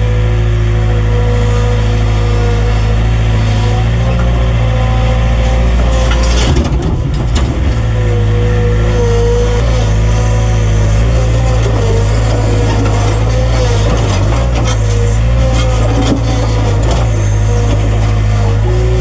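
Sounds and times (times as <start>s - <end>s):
heavy engine running: 0.0s - 19.0s.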